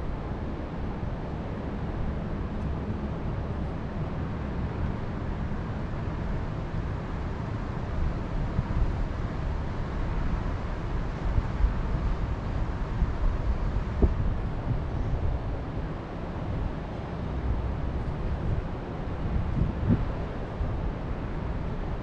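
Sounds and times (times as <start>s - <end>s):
wind gusts on microphone: 8.0s - 22.0s.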